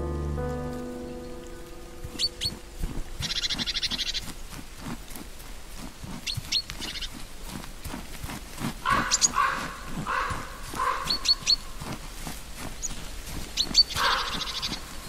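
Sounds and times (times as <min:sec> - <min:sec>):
high whistled bird notes: 0:00.0 - 0:04.2
soft low thumps: 0:00.0 - 0:06.2
fast rattling bird trill: 0:02.1 - 0:02.6, 0:03.2 - 0:04.3, 0:06.2 - 0:07.2, 0:08.8 - 0:11.7, 0:12.8 - 0:15.0.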